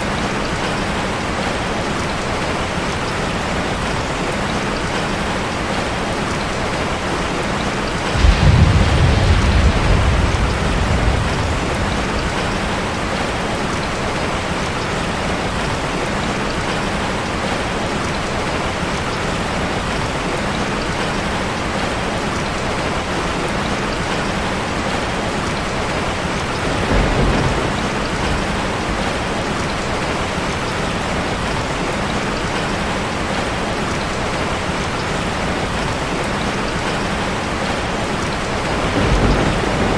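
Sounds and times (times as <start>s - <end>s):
rain on a metal roof: 0.0s - 39.9s
deep thunder rumble: 7.7s - 14.8s, 26.3s - 30.1s, 38.4s - 39.9s.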